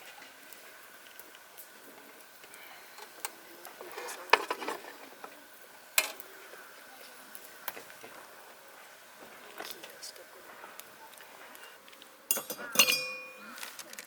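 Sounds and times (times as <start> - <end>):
utensils and dishes clinking: 3.8 - 5.0, 11.5 - 13.8.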